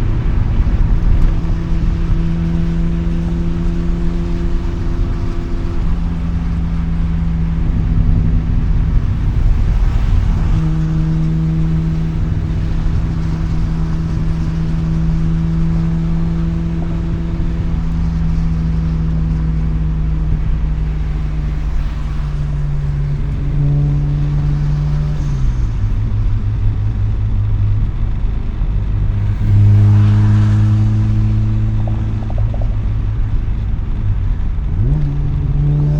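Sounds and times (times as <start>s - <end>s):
rotary engine cruising: 0.0s - 35.9s.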